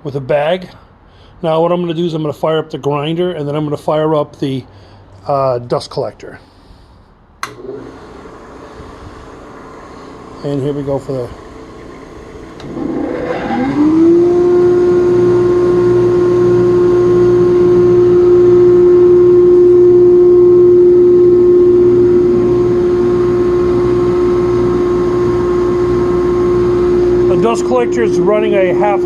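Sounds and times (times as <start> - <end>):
grinder and dust collector humming: 7.6 - 29.0.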